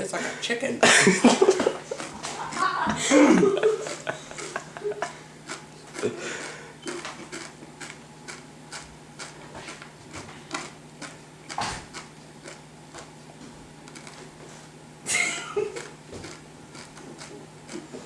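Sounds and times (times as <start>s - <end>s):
crunchy chewing: 1.4s - 14.5s, 15.8s - 18.0s.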